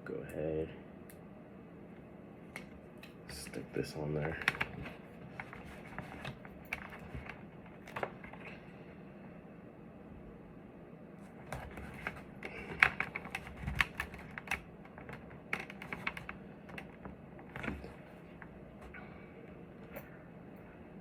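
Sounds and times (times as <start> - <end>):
hands clicking and tapping helmet: 11.5 - 18.4.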